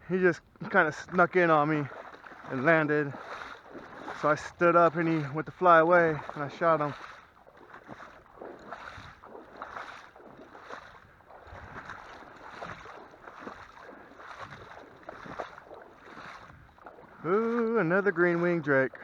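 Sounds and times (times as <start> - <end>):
wading through splashing water: 0.0 - 19.0
light wind on microphone: 10.6 - 13.1.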